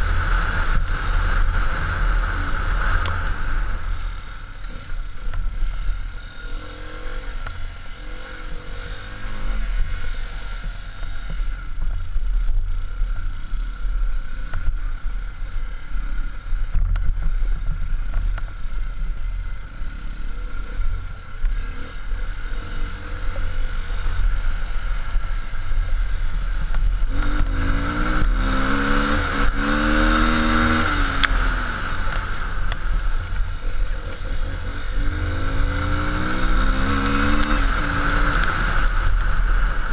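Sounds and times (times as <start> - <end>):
car driving on road: 0.0 - 39.9
car engine revving: 26.5 - 39.9.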